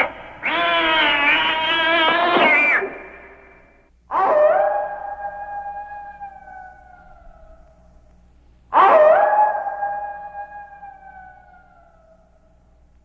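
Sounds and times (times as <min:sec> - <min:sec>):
dog howling: 0:00.0 - 0:03.0, 0:08.7 - 0:12.2.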